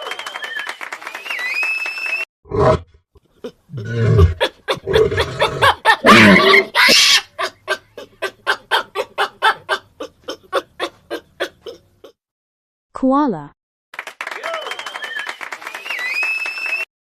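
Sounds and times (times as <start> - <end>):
kangaroo grunts and calls: 2.5 - 12.1
kangaroo clucking pulses: 3.4 - 11.8.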